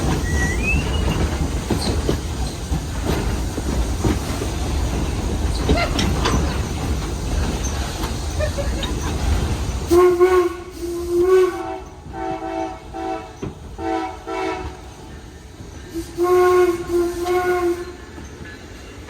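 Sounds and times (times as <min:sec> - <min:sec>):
steam locomotive whistle: 0:00.2 - 0:01.3, 0:09.9 - 0:14.9, 0:15.9 - 0:18.0
locomotive air horn blasts: 0:09.9 - 0:15.0, 0:16.0 - 0:18.0.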